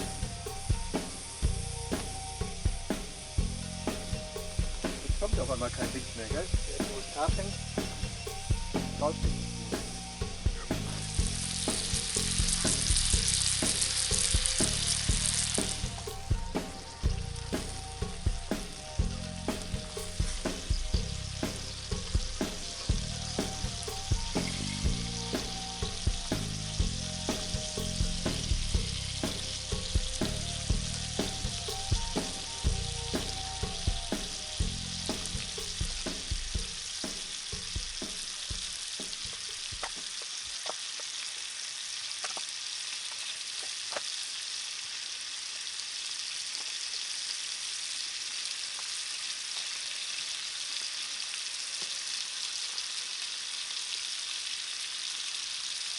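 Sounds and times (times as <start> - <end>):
campfire crackling and popping: 35.3 - 44.2
food sizzling in a pan: 35.4 - 55.9.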